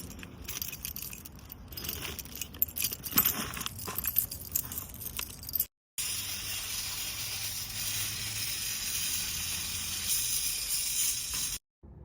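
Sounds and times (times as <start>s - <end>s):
light metallic jingling: 0.0s - 5.7s.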